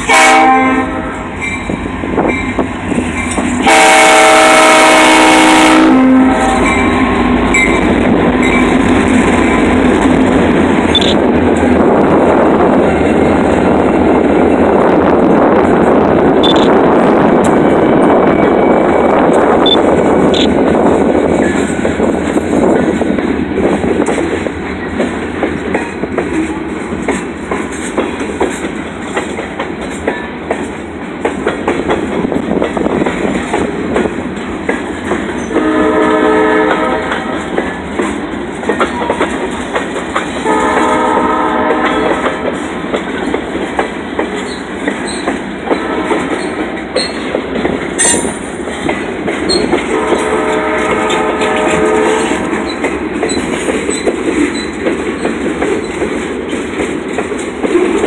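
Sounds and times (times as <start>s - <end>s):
train horn blasts: 0.0s - 1.6s, 3.6s - 8.6s, 35.4s - 37.6s, 40.4s - 42.6s, 45.7s - 46.5s, 49.8s - 52.8s
diesel locomotive passing: 0.0s - 58.0s
train wheels clacking over rails: 1.3s - 5.8s, 17.4s - 58.0s.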